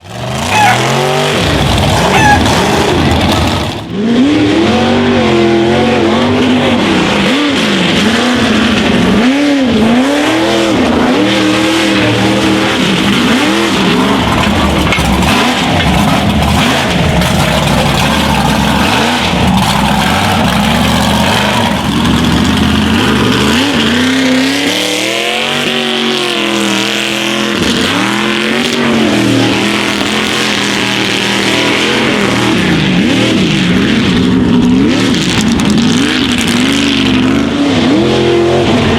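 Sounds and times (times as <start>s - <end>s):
truck engine revving hard: 0.0s - 38.9s.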